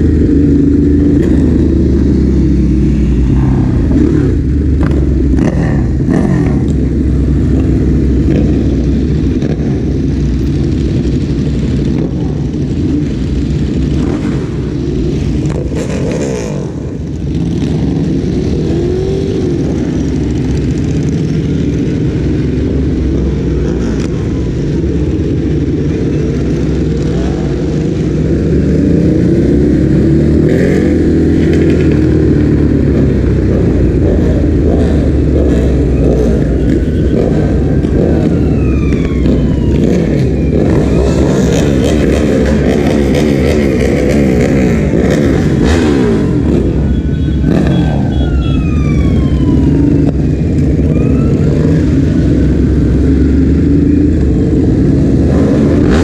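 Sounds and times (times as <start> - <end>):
motorcycle engine revving: 0.0 - 56.0
ambulance siren wailing: 35.2 - 42.6, 45.6 - 55.1.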